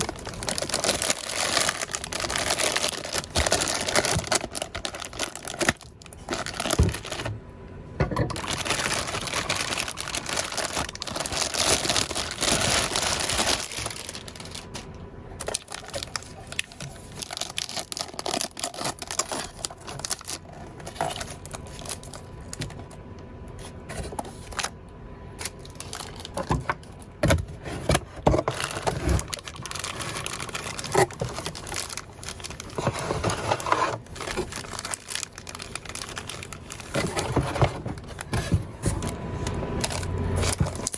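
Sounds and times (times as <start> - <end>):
packaging crinkling and rustling: 0.0 - 7.4, 8.0 - 24.8, 25.4 - 40.9.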